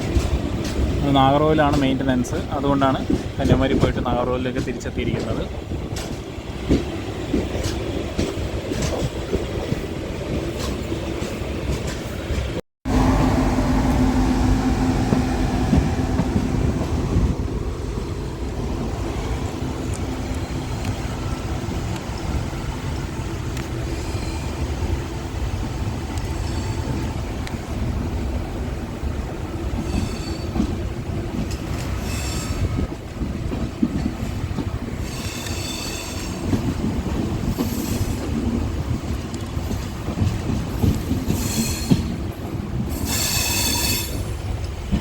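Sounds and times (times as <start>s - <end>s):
train rumbling on track: 0.0s - 45.0s
wheels clicking over rail joints: 29.6s - 45.0s.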